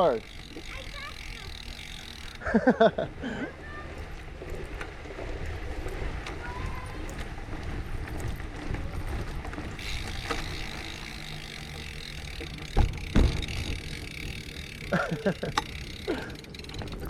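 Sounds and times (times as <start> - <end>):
wind and riding rumble: 0.0 - 17.0
sharp knocks: 12.7 - 13.5.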